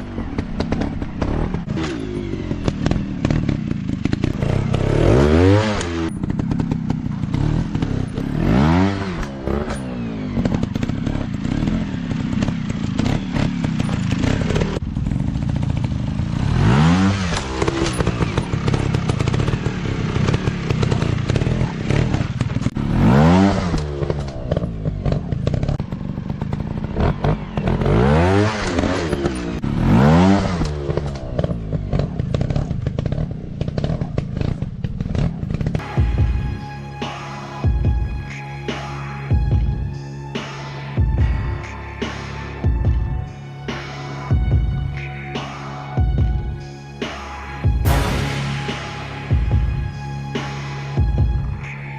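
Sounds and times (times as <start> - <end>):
dirt bike engines revving: 0.0 - 36.2
engine running steadily: 0.0 - 51.9.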